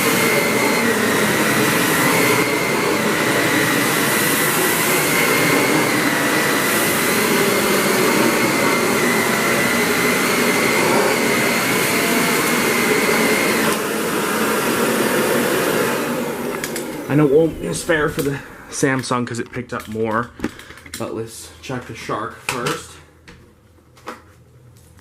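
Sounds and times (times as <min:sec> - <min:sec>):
vacuum motor spinning down: 0:00.0 - 0:18.7
vacuum cleaner running: 0:00.0 - 0:19.3.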